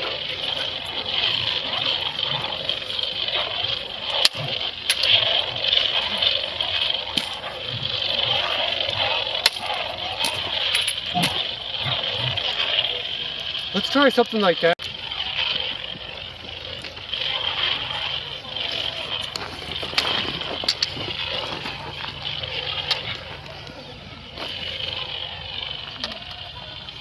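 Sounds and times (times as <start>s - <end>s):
sharp clicks: 0.0s - 23.6s
faint distant voices: 14.9s - 27.0s.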